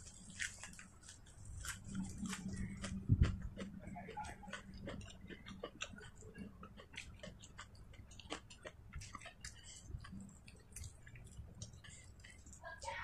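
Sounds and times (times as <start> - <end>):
chewing clicks: 0.1 - 12.7.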